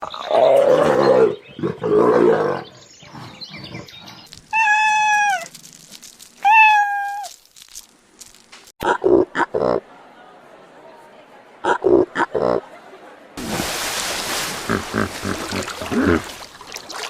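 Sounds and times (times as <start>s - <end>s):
cat meowing: 4.5s - 5.5s, 6.4s - 7.3s
cat yowling: 4.6s - 5.5s, 6.4s - 7.3s.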